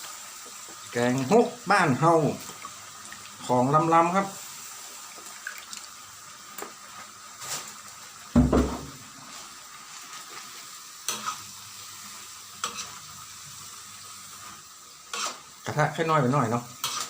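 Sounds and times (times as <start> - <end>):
food sizzling: 0.0 - 17.0
dull knock: 8.4 - 9.0
spatula scraping in wok: 11.1 - 11.5, 12.6 - 13.0, 14.4 - 15.5, 16.8 - 17.0.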